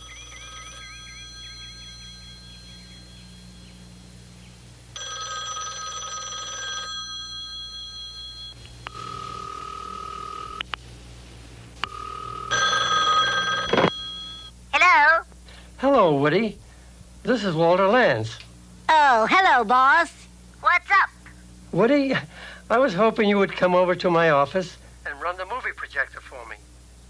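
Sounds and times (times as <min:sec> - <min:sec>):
cartoon telephone ringing: 0:00.0 - 0:03.8, 0:05.0 - 0:10.6, 0:11.9 - 0:14.5
plain steady tone: 0:00.0 - 0:10.7, 0:11.8 - 0:15.1.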